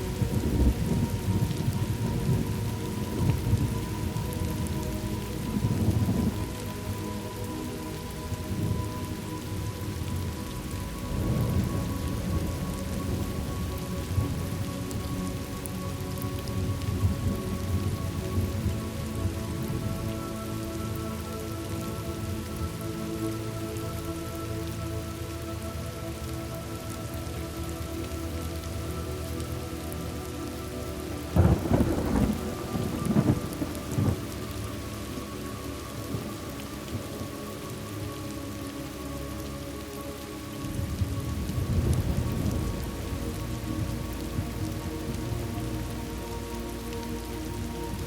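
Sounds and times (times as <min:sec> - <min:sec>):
steady rain: 0:00.0 - 0:48.0
thunder rumbles: 0:11.1 - 0:15.0, 0:31.4 - 0:34.5, 0:40.8 - 0:43.1.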